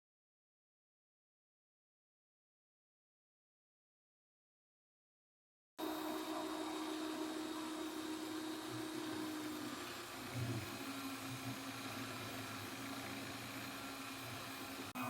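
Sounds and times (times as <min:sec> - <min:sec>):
small electric motor humming: 0:05.8 - 0:15.0.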